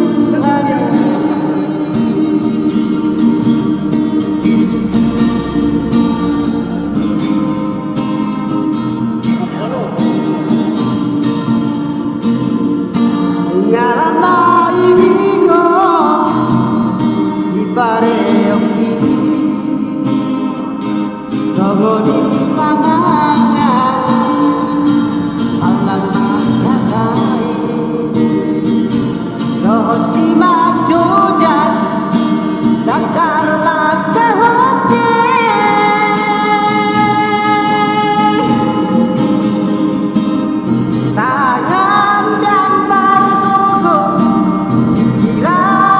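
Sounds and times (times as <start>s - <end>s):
man singing long held notes: 0.0s - 8.6s
acoustic guitar accompaniment: 0.0s - 45.9s.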